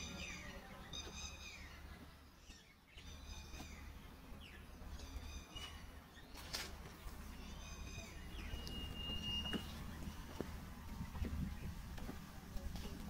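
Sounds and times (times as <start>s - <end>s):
bird calling high notes: 7.5s - 9.9s.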